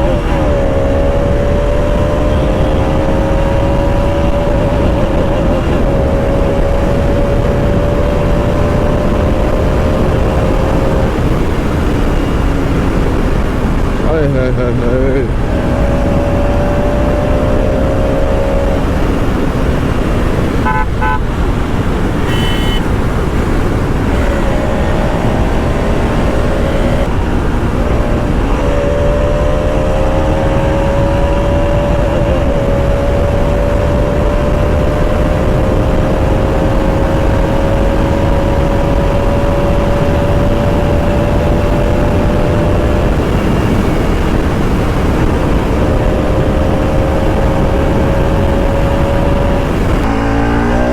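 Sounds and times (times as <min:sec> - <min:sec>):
motorcycle engine accelerating: 0:00.0 - 0:50.9
wind and road noise: 0:00.0 - 0:50.9
vehicle horn honking: 0:02.2 - 0:03.5, 0:20.6 - 0:21.5, 0:22.2 - 0:23.2, 0:24.1 - 0:27.1.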